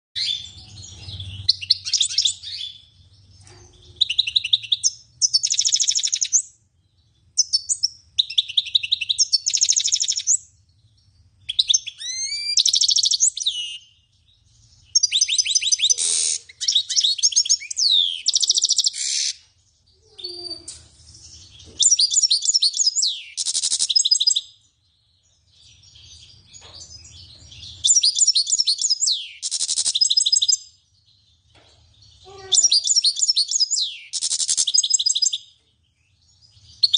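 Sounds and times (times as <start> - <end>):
songbird trilling: 11.5 - 13.8, 32.2 - 35.4.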